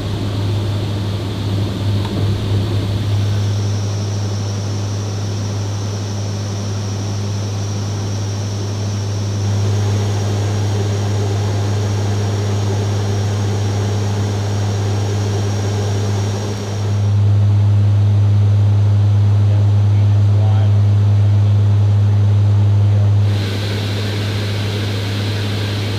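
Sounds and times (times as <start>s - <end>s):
helicopter rotors droning: 0.0s - 17.4s, 23.2s - 25.9s
thin high whine: 2.1s - 17.3s, 23.2s - 25.9s.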